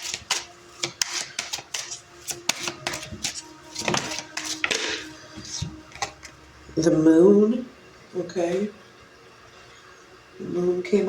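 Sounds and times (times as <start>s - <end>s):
cards clicking and flicking: 0.0s - 5.1s
cards sliding swishes: 0.0s - 6.2s.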